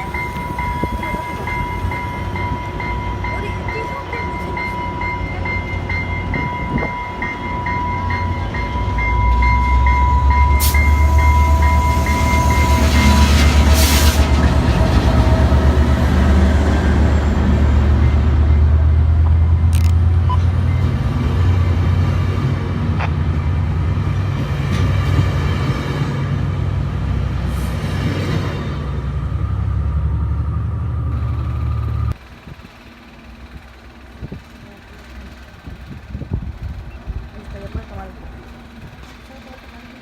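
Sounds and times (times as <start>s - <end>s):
steady high tone: 0.0s - 14.0s
train engine rumble: 0.0s - 40.0s.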